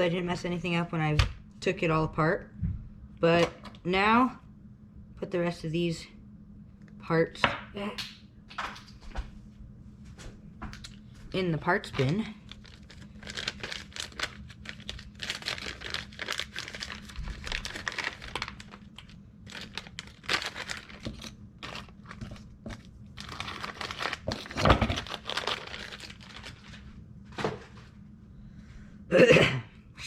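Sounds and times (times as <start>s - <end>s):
plastic packaging crinkling: 11.9s - 26.9s.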